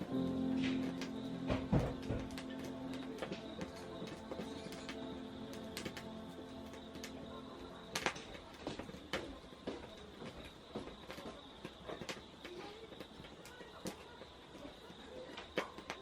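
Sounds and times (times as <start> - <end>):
background music: 0.0 - 9.2
sharp pops from fire: 0.0 - 16.0
wood fire crackling: 0.0 - 16.0.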